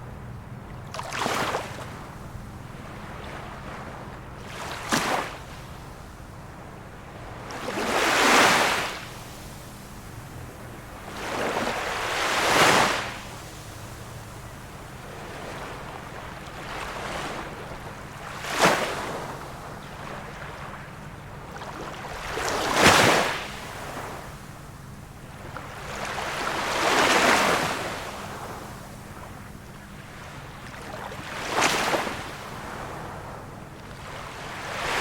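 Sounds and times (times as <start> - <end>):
small waves washing onto shore: 0.9 - 2.1, 2.8 - 6.0, 7.0 - 35.0.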